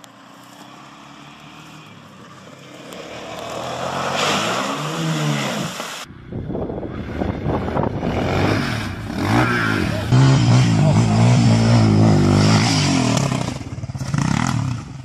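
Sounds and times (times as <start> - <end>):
quad bike engine: 0.0 - 15.0
water spraying: 2.9 - 6.1
wind noise: 6.0 - 10.1.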